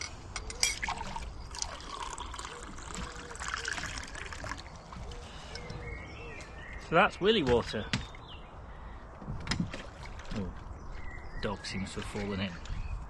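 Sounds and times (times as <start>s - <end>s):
liquid trickling as poured: 0.5s - 5.2s.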